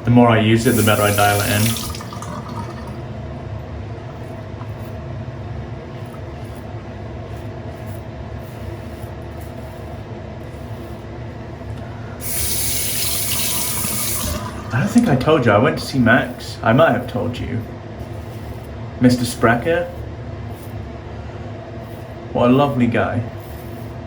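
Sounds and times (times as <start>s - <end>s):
low mechanical rumble with hum: 1.8s - 12.7s.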